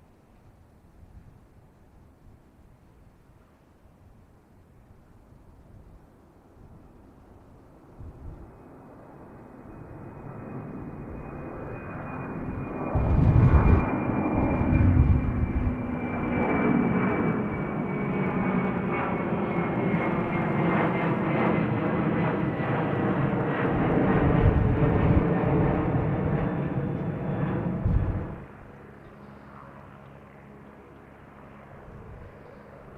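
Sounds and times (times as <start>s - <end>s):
airliner engines taking off: 4.3s - 32.9s.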